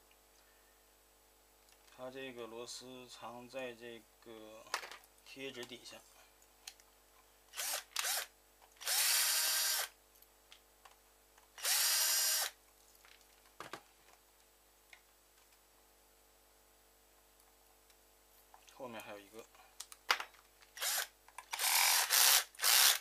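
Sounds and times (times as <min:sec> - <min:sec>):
electric screwdriver whining: 0:07.5 - 0:09.9, 0:11.6 - 0:12.6, 0:20.8 - 0:23.0.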